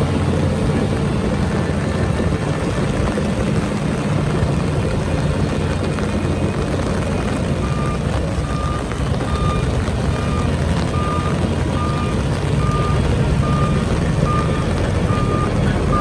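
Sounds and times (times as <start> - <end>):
heavy diesel engine running: 0.0 - 16.0
reversing beep: 7.6 - 16.0.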